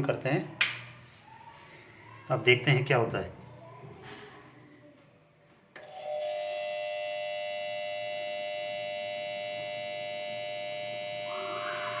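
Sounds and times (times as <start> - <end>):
high electronic buzzer tone: 5.9 - 12.0.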